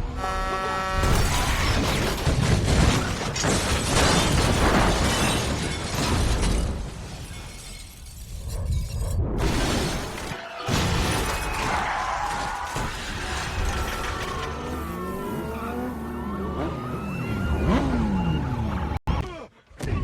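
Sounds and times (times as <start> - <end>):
metal crashing: 1.1 - 14.8
glass smashing: 1.2 - 14.6
wailing sliding tones: 10.3 - 19.0.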